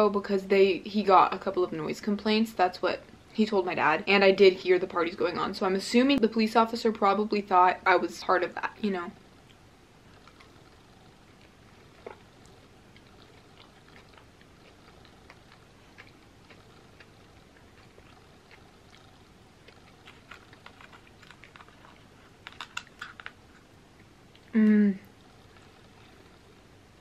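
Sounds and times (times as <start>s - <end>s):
pie crust crackling: 8.5s - 24.6s
chewing with clicks and smacks: 9.4s - 26.6s.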